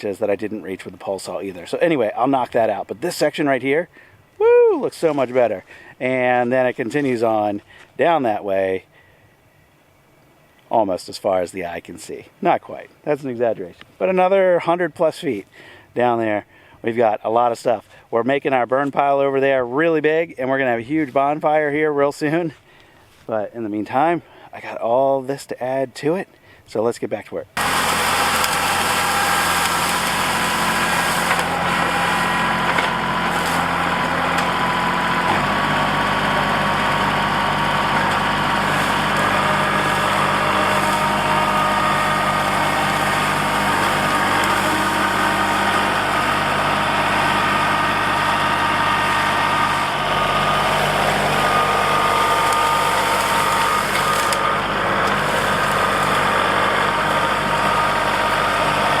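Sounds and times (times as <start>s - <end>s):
tractor diesel engine running: 27.6s - 59.0s.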